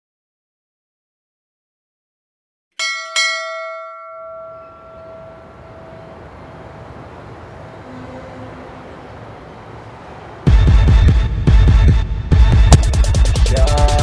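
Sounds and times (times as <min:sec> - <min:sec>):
bell ringing: 0:02.8 - 0:07.8
low steady noise: 0:03.3 - 0:10.6.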